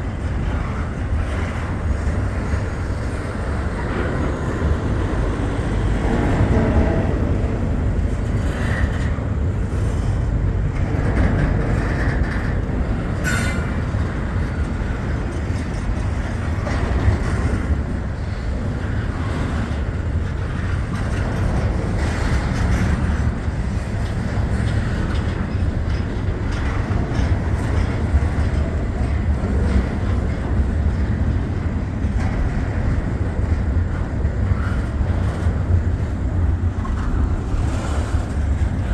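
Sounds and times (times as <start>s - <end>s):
freight train wheels rumbling: 0.0s - 38.9s
high-pitched train squeal: 13.2s - 13.9s.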